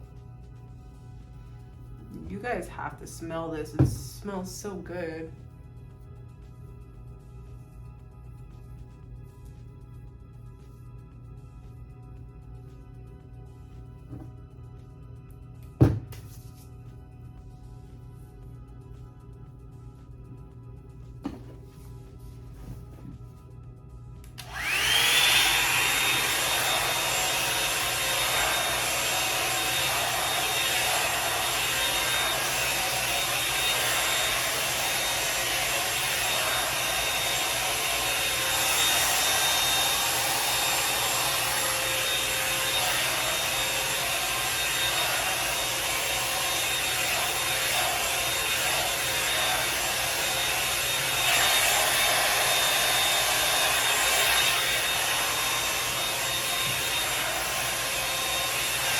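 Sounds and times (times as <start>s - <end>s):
hair dryer brush blowing with high whine: 2.0s - 5.2s, 14.0s - 14.3s, 24.4s - 58.9s.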